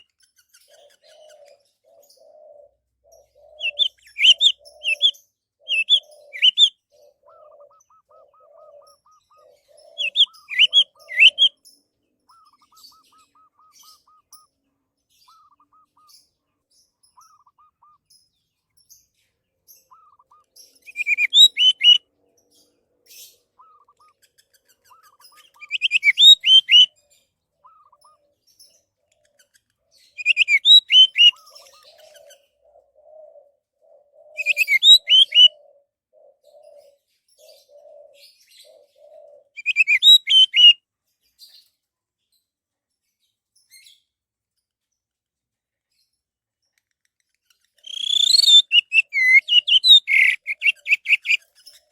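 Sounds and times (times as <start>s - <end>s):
other birds calling faintly: 0.0s - 51.9s
thrush singing whistled phrases: 3.6s - 6.8s, 10.0s - 11.6s, 20.0s - 22.0s, 25.6s - 26.9s, 30.2s - 31.4s, 34.4s - 35.5s, 39.6s - 40.8s, 47.8s - 51.4s.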